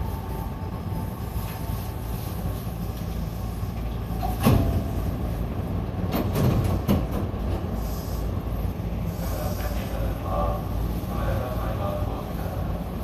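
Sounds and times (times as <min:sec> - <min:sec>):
train humming: 0:00.0 - 0:13.0
loud clunk: 0:04.2 - 0:05.0.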